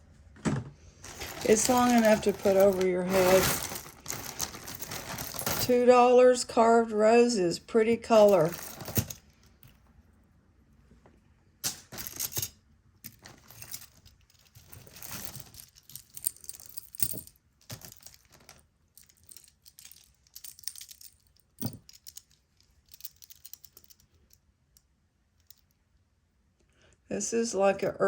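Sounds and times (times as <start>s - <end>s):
jewelry beads clinking: 1.0s - 6.0s, 7.6s - 9.8s, 11.8s - 24.4s.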